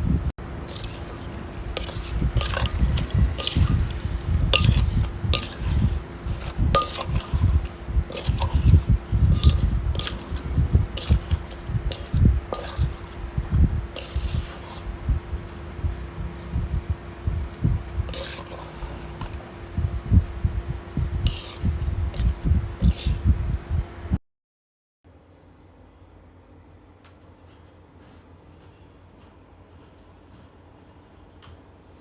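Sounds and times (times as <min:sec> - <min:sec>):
wet squishing of salad: 0:00.6 - 0:15.5, 0:17.2 - 0:19.6, 0:21.2 - 0:23.2.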